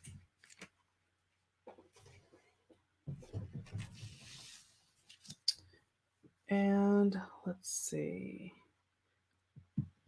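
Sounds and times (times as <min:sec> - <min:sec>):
paper rustling: 0:00.0 - 0:00.8.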